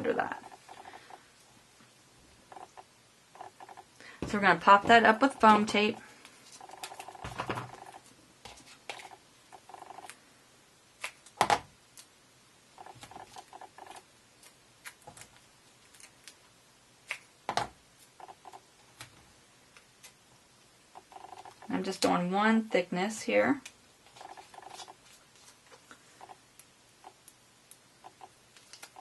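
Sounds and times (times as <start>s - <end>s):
hands handling tape and cardstock: 28.5s - 29.0s.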